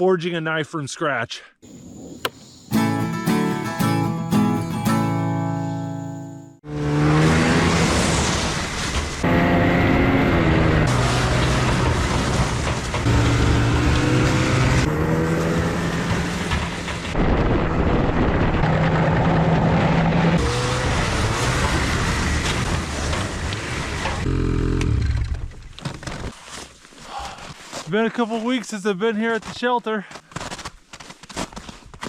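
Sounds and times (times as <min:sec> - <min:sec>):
engines running and revving: 0:06.5 - 0:25.5.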